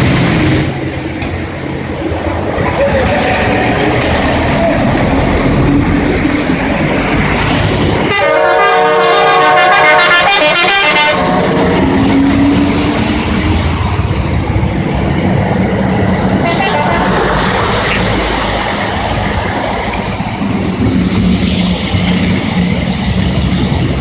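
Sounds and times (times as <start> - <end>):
loud steady rushing noise: 0.0 - 24.0
vehicle horn blast: 8.1 - 11.6, 16.4 - 17.0.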